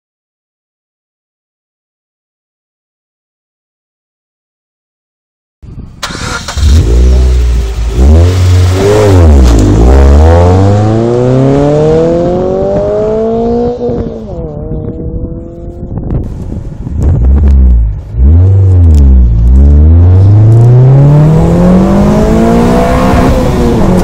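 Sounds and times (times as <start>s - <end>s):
car engine accelerating hard: 6.0s - 16.5s, 17.1s - 24.0s.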